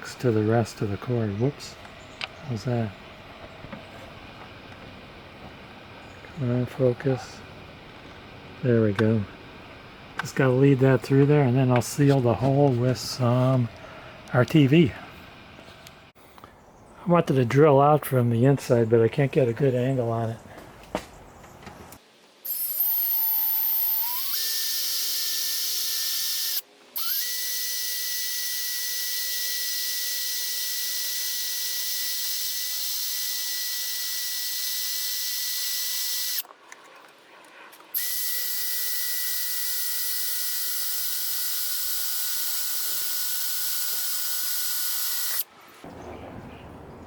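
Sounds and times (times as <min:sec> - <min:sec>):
electric drill whining: 0:22.4 - 0:36.4, 0:37.9 - 0:45.5.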